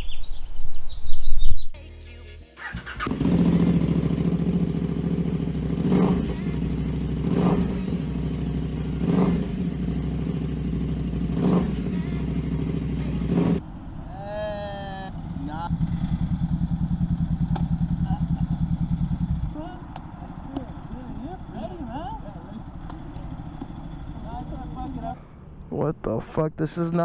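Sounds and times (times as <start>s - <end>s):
motorcycle engine running: 2.6s - 13.6s, 14.7s - 25.2s.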